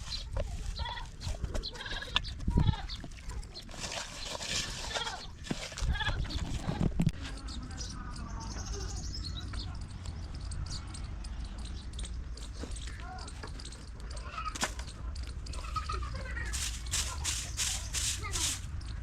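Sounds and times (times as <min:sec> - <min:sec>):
rhythmic rustling strokes: 0:09.9 - 0:19.0.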